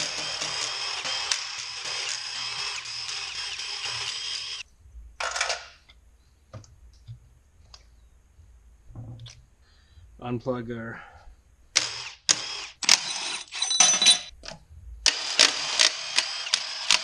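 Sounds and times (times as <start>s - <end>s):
power tool whining: 0.0s - 4.6s, 15.1s - 17.0s.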